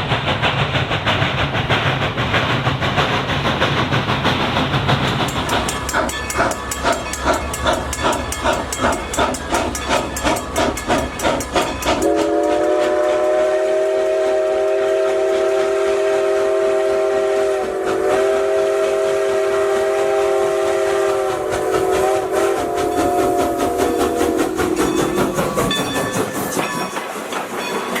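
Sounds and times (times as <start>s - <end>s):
train chugging: 0.0s - 28.0s
train horn blast: 12.0s - 25.1s.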